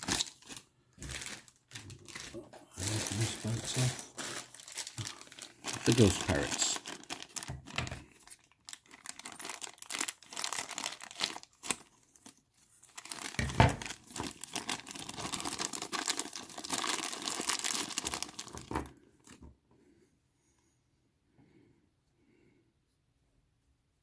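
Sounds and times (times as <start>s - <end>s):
plastic bags crinkling and tearing: 0.0s - 19.4s.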